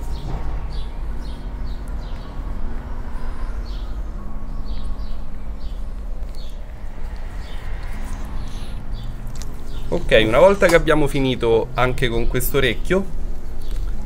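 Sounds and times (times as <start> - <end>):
faint hum: 0.0 - 14.0
low rumble: 0.0 - 14.0
small birds chirping: 0.0 - 14.0.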